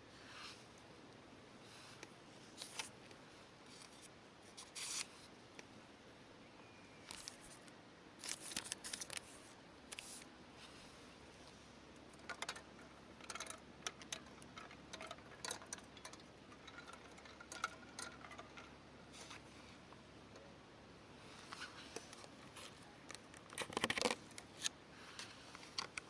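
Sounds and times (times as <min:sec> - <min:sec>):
objects being handled clicking: 0:12.1 - 0:19.4.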